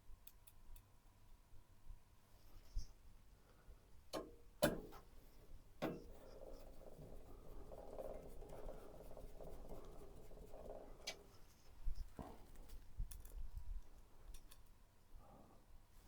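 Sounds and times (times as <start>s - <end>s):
hands scraping and rubbing: 6.1s - 12.8s.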